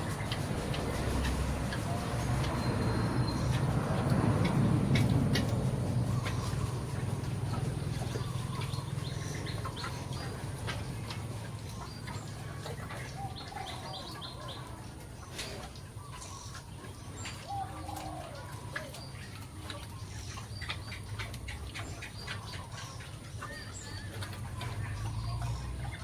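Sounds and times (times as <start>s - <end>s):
steady low rumble: 0.0s - 15.3s
birds chirping: 0.0s - 26.0s.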